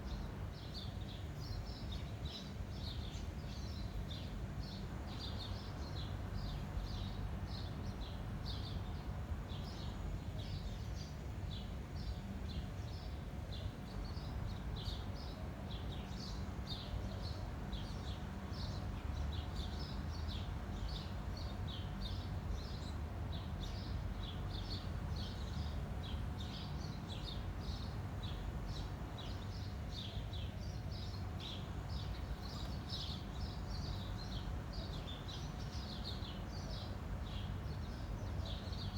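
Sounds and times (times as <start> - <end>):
small birds chirping: 9.6 - 38.9.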